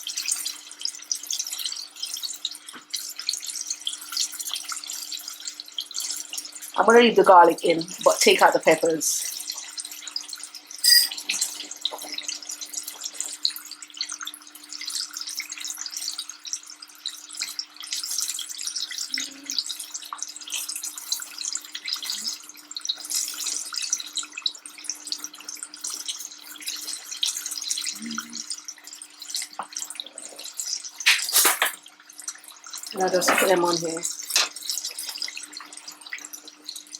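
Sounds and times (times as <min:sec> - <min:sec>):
hot oil sizzling: 0:00.0 - 0:36.9.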